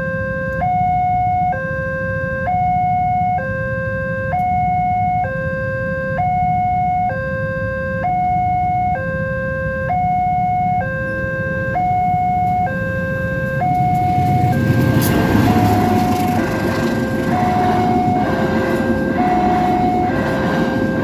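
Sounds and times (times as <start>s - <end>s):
level crossing two-tone alarm: 0.0s - 21.0s
train passing: 11.7s - 21.0s
low rumble: 13.0s - 21.0s.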